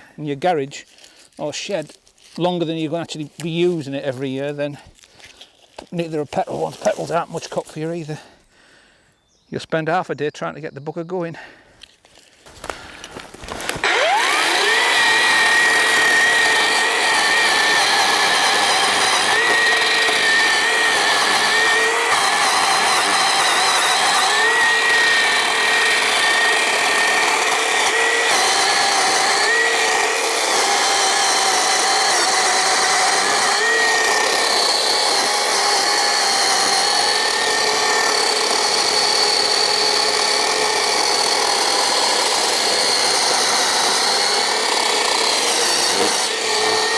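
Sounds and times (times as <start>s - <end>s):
electric chainsaw cutting logs: 6.0s - 7.6s, 12.5s - 46.9s.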